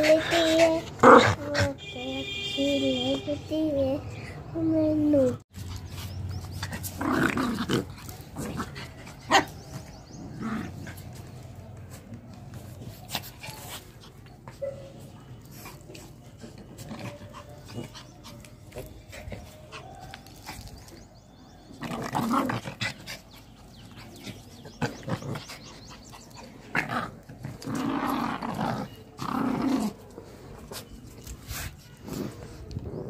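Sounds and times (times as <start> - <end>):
dogs growling: 6.4 - 11.2, 21.7 - 30.1.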